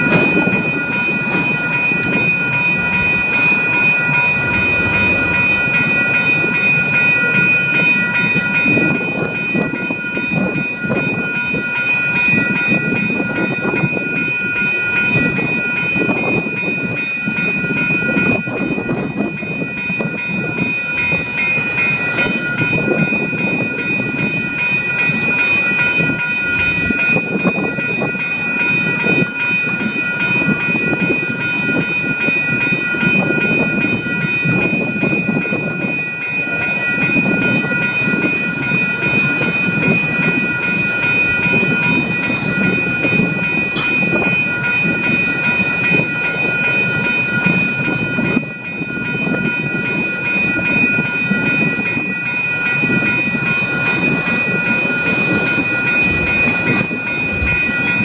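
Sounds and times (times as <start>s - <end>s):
high whining tones: 0.0s - 15.8s.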